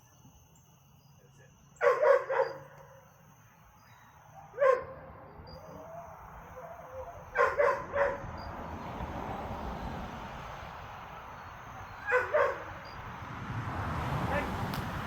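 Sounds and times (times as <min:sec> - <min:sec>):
dog barking: 0:01.8 - 0:03.0, 0:04.0 - 0:08.6, 0:12.0 - 0:13.0, 0:14.3 - 0:14.5.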